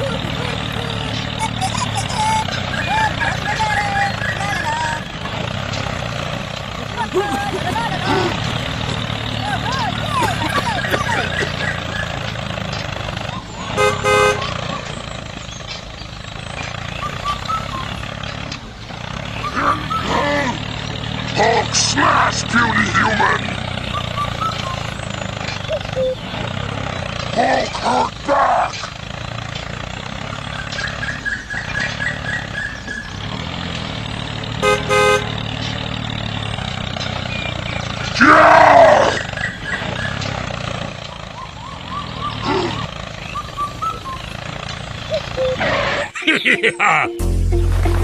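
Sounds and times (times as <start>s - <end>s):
horn tooting: 13.5s - 15.0s, 19.1s - 25.1s, 34.4s - 39.3s, 45.4s - 48.0s.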